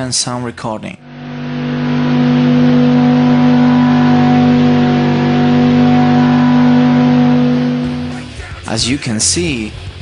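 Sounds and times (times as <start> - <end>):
engine at steady revs: 1.0 - 8.7.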